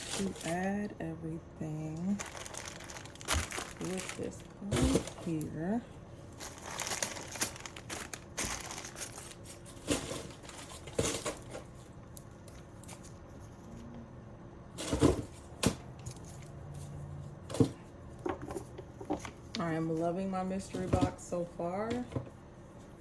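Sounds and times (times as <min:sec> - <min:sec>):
plastic packaging crinkling: 0:00.0 - 0:00.8, 0:02.0 - 0:05.7, 0:06.3 - 0:11.8
items knocking and clicking: 0:02.2 - 0:05.6, 0:17.5 - 0:19.4, 0:20.7 - 0:22.3.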